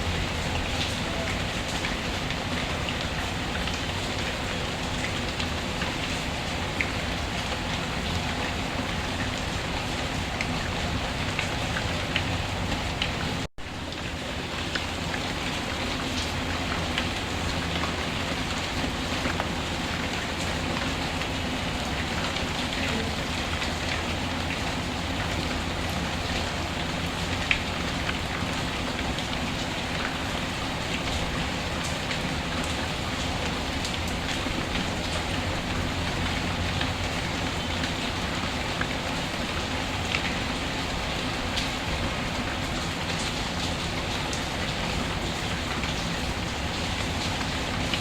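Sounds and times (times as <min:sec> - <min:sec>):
steady rain hiss: 0:00.0 - 0:48.0
raindrop ticks: 0:14.5 - 0:41.8.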